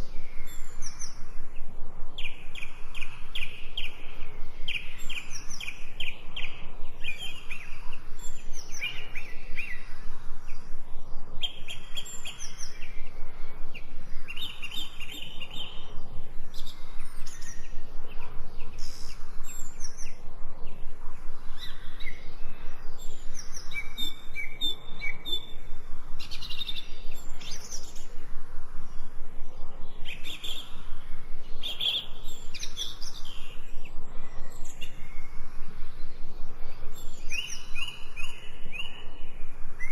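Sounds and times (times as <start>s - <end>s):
songbirds chirping and singing: 0.0s - 28.3s, 28.9s - 39.9s.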